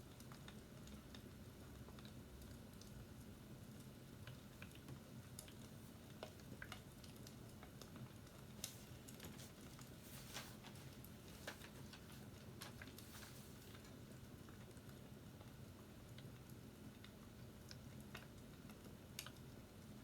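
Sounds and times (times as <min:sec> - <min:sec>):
fireplace crackling: 0:04.5 - 0:15.0.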